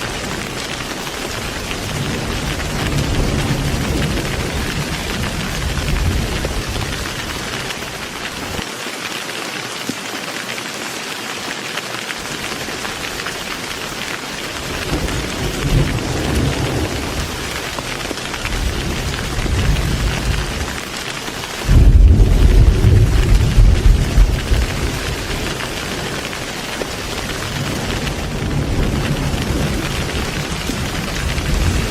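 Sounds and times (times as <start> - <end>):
rolling thunder: 0.0 - 7.8, 14.5 - 20.8, 21.6 - 31.9
heavy rain falling: 0.0 - 31.9.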